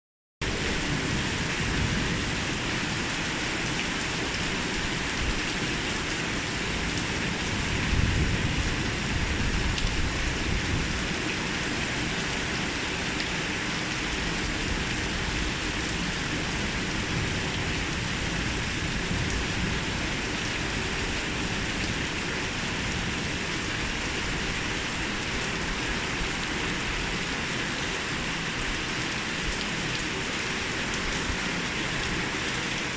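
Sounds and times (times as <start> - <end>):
heavy rain: 0.4 - 32.9.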